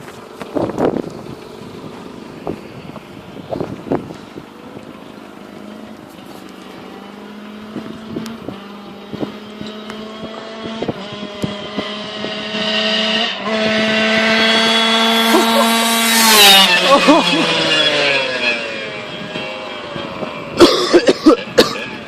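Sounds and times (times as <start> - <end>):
motorcycle engine approaching: 0.0 - 20.7.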